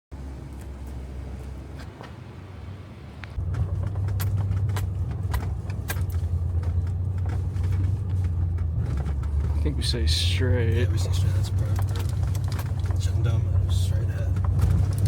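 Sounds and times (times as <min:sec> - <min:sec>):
road rumble inside truck: 0:00.1 - 0:15.0
light clicks and rattles: 0:03.2 - 0:15.0.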